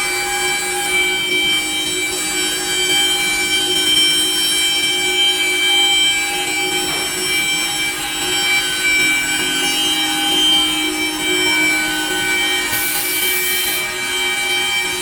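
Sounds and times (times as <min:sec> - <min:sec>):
router spindle whine: 0:00.0 - 0:15.0
router cutting wood: 0:06.0 - 0:15.0.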